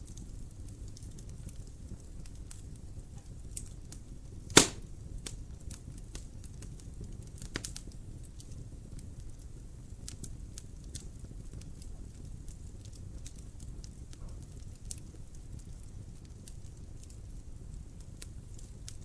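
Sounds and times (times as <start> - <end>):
wood fire crackling: 0.0 - 19.0
loud sharp pop of fire: 4.4 - 5.4, 7.4 - 7.9.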